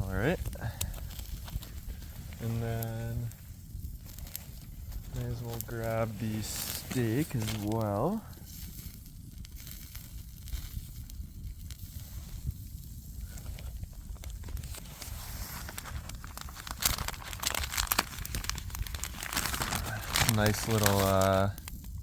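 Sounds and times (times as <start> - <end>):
plastic packaging crinkling: 0.0 - 3.4, 4.0 - 8.9, 13.2 - 21.8
low rumble: 0.0 - 21.6.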